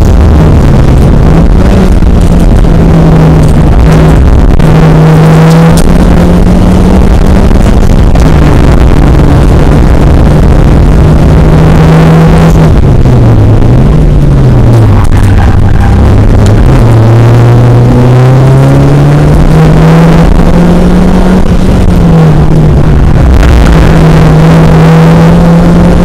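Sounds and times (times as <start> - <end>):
car engine running hard: 0.0 - 26.0.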